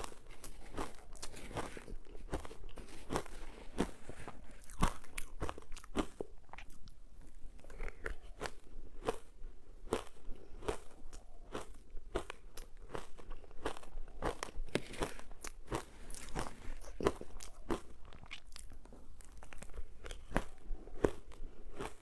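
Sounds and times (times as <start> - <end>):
ice being chewed: 0.0 - 22.0.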